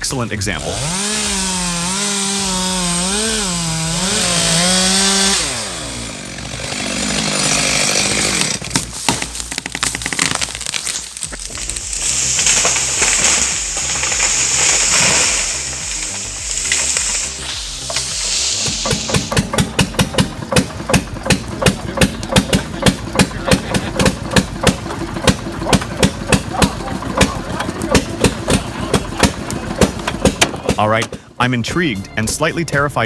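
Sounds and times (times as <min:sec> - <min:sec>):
chainsaw revving: 0:00.5 - 0:31.0
wood cracking: 0:00.8 - 0:31.0
tree falling rushing noise: 0:05.9 - 0:30.4.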